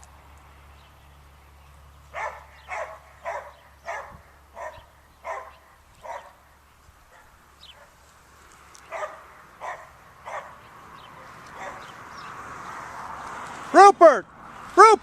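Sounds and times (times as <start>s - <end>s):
dog barking: 2.1s - 6.4s, 8.9s - 10.6s, 11.2s - 11.9s.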